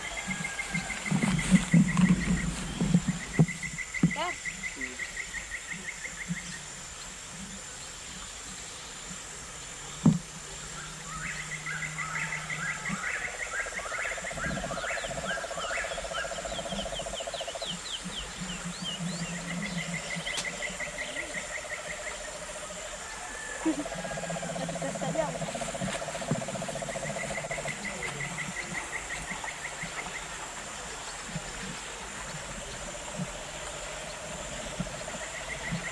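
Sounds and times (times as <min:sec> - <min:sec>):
frogs rattling trills: 0:00.0 - 0:07.7, 0:09.2 - 0:35.9
high insect hiss: 0:00.0 - 0:35.9
low pulsing frog trill: 0:10.4 - 0:35.9.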